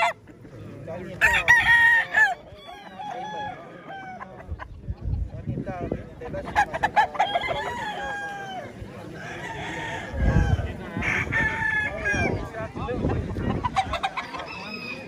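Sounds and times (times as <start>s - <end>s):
roosters crowing: 0.0s - 0.2s, 1.1s - 4.5s, 6.5s - 12.5s, 13.6s - 15.0s.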